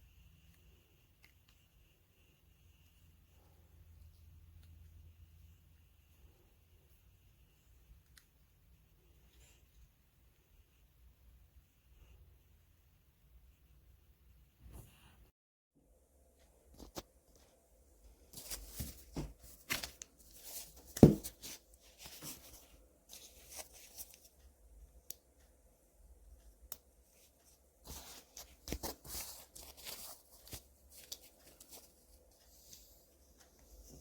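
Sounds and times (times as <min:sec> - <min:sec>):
rustling: 0:18.2 - 0:24.4, 0:27.2 - 0:34.0.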